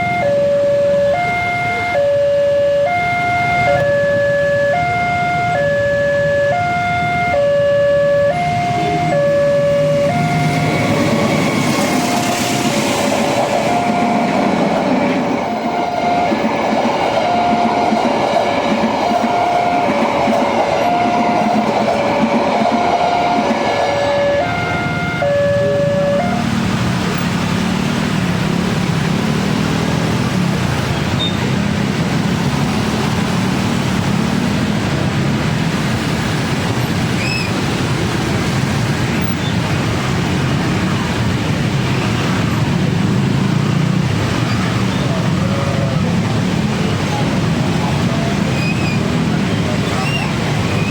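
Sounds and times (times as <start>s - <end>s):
level crossing alarm: 0.0s - 26.7s
train rumbling past: 0.0s - 50.9s.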